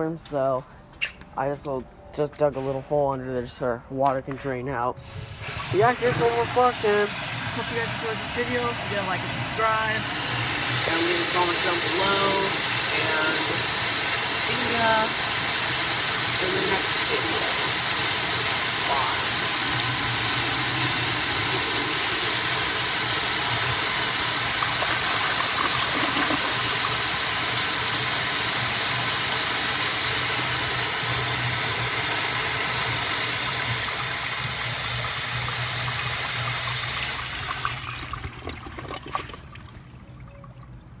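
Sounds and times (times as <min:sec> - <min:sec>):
toilet flushing: 0:05.0 - 0:40.0
water trickling and gurgling: 0:37.5 - 0:41.0.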